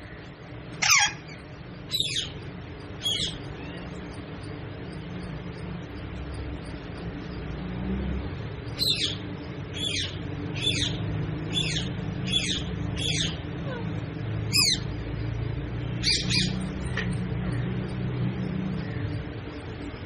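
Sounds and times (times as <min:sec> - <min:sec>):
low background hum: 0:00.0 - 0:20.0
parrot calling: 0:00.8 - 0:02.4, 0:03.0 - 0:04.0, 0:08.8 - 0:14.9, 0:16.0 - 0:16.7.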